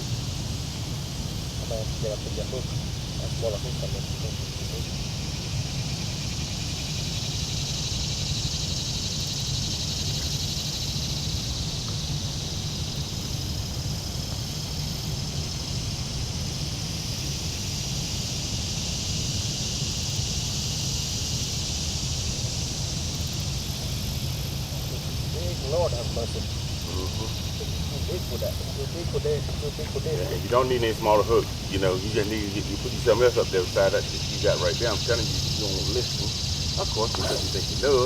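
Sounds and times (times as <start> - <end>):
insect chorus buzzing: 0.0 - 38.0.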